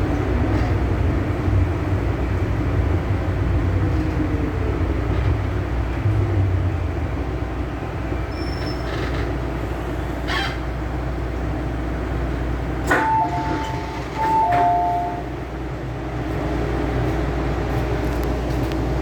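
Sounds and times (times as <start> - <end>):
train wheels rumbling on track: 0.0 - 19.0
short squealing tones: 8.3 - 9.4, 10.2 - 10.7.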